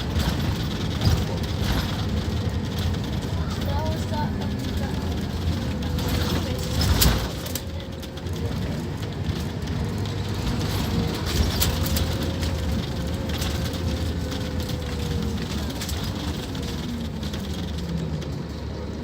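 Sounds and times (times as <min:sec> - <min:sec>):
bus diesel engine rumbling: 0:00.0 - 0:19.0
light rattles and clicks: 0:00.0 - 0:19.0.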